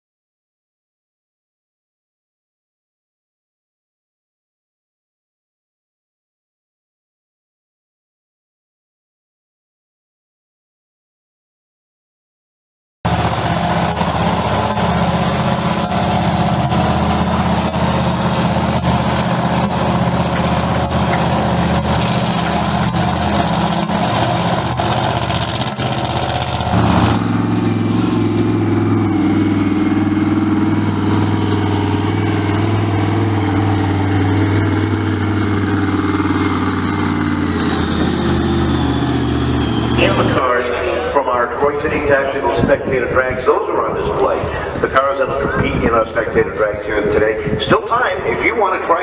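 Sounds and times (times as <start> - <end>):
vehicle engines idling: 13.1 - 49.0.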